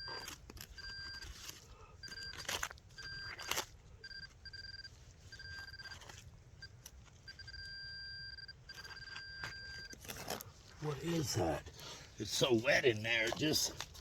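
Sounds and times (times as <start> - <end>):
digging in wet soil: 0.0 - 7.5, 8.7 - 14.0
metal detector beeping: 0.0 - 10.0.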